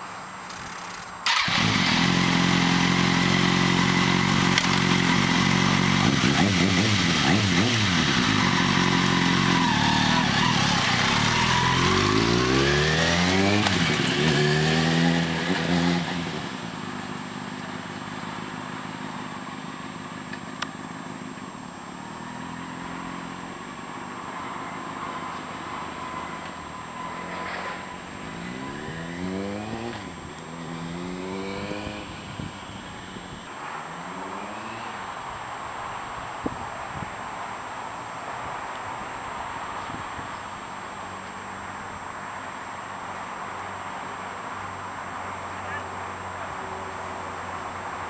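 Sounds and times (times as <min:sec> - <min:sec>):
motorcycle accelerating through gears: 0:01.2 - 0:35.4.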